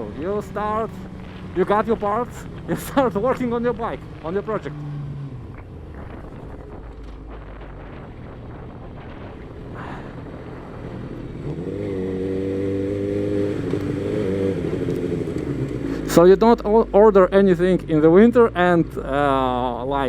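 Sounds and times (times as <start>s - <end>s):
wind rumbling on microphone: 0.0s - 15.9s
motorcycle engine: 0.0s - 20.0s.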